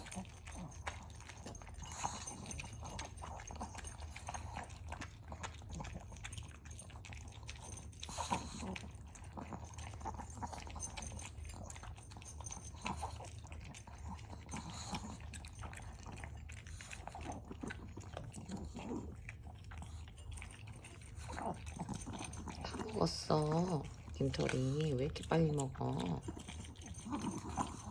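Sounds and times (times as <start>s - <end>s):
dog crunching dry kibble: 0.0s - 27.9s
low steady hum: 8.8s - 27.9s.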